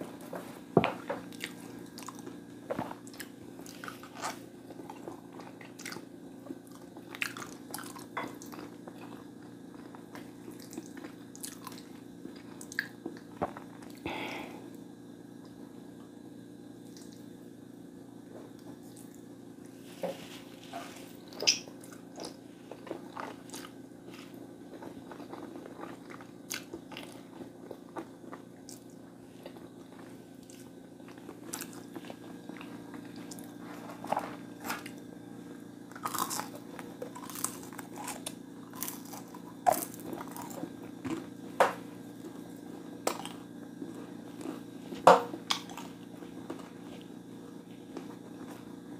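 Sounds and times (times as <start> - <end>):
steady low hum: 0.0 - 48.9
food crunching: 0.2 - 14.0, 20.1 - 35.1, 35.9 - 48.8
chewing and biting food: 1.2 - 14.0, 20.9 - 35.1, 35.9 - 41.4, 42.2 - 47.2.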